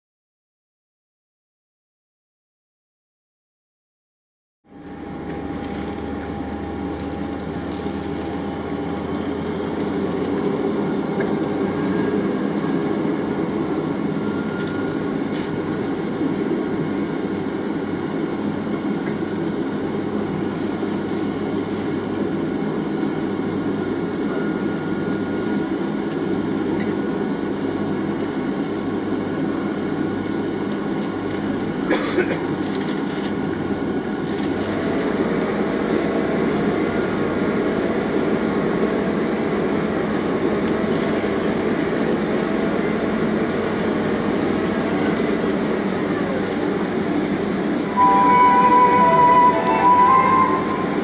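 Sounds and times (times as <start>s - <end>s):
faint high whine: 48.0s - 51.0s.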